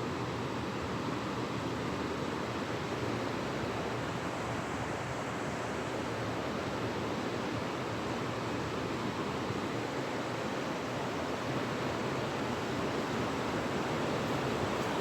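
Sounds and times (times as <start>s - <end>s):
creek water flowing: 11.4s - 15.0s.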